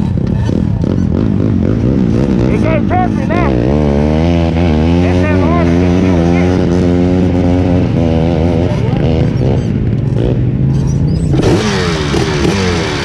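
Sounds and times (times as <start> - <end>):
engine revving: 0.0 - 13.0
off-road engines running: 0.0 - 13.0.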